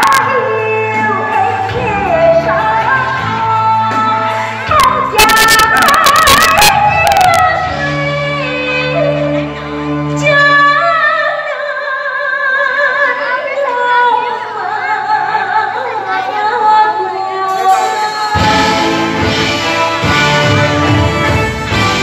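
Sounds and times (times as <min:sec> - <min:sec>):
person singing with vibrato: 0:00.0 - 0:22.0
band playing loudly: 0:02.4 - 0:08.4, 0:17.5 - 0:22.0.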